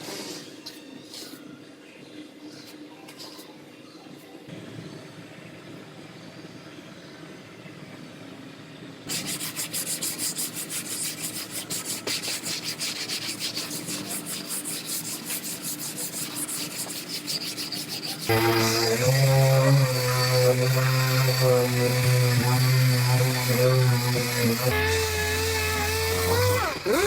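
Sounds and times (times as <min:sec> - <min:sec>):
sanding car body panel: 0:09.1 - 0:27.0.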